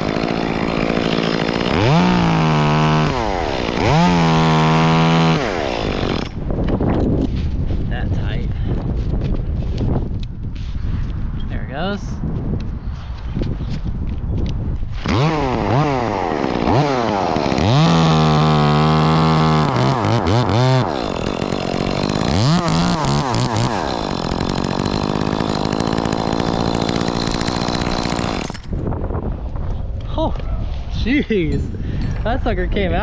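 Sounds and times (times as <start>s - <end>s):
chainsaw revving: 0.0s - 6.4s, 15.0s - 28.8s.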